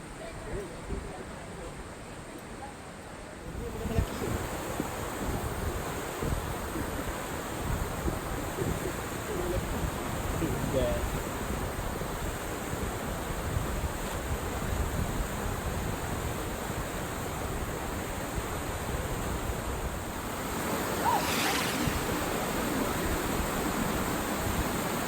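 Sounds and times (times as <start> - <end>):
waterfall roar: 20.0 - 25.0.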